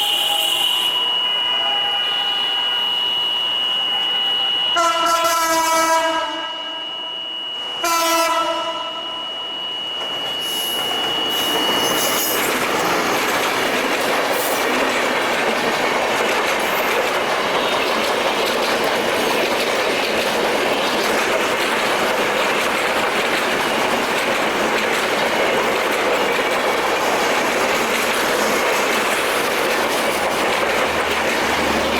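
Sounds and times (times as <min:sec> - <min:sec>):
locomotive horn blast: 0:00.0 - 0:07.0, 0:07.8 - 0:09.3
high-pitched tone: 0:00.0 - 0:13.1
train wheels clattering on rails: 0:10.0 - 0:31.9.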